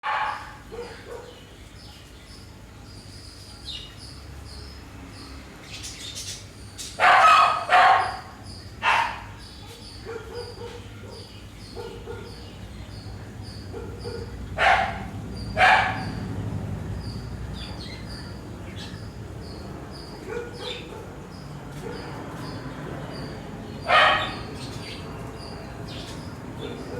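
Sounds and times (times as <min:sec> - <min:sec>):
dog barking: 0:00.0 - 0:01.4, 0:07.0 - 0:12.5, 0:13.7 - 0:16.3, 0:20.2 - 0:22.5, 0:23.8 - 0:24.6, 0:26.6 - 0:26.9.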